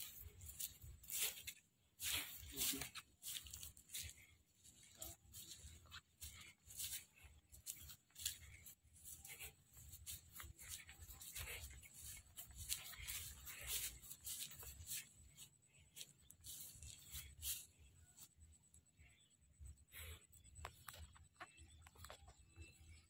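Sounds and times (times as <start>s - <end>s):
scratchy rustling on microphone: 0.0s - 18.3s.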